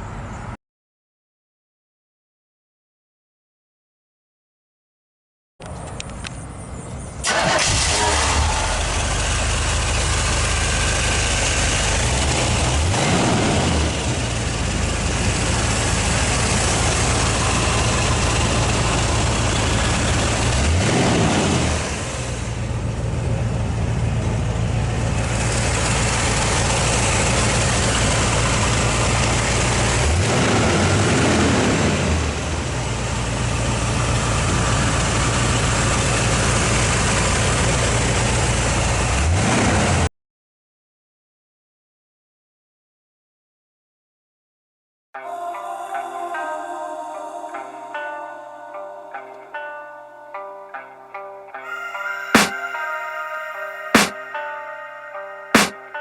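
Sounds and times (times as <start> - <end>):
car engine idling and revving: 5.6 - 40.1.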